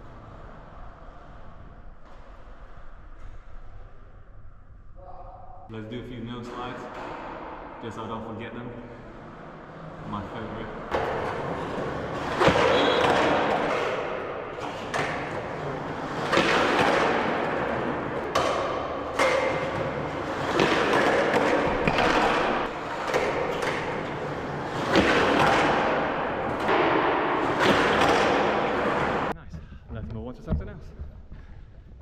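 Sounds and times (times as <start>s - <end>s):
skateboard rolling on concrete: 10.8s - 29.4s
skateboard thuds and scrapes: 10.9s - 29.4s.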